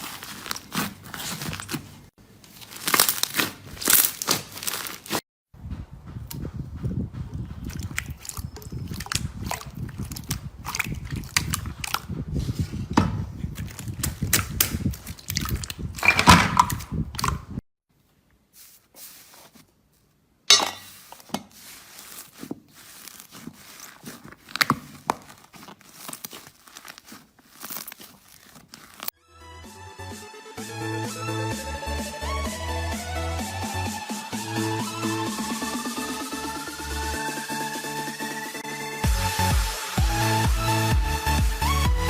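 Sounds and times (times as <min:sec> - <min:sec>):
slime squished by hand: 0:00.0 - 0:05.2, 0:07.6 - 0:12.1, 0:20.9 - 0:29.1.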